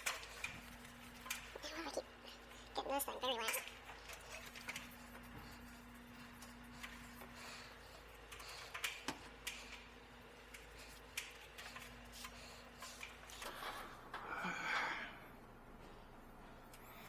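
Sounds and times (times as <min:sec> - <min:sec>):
tools clicking and tapping: 0:00.0 - 0:01.6, 0:03.4 - 0:13.6.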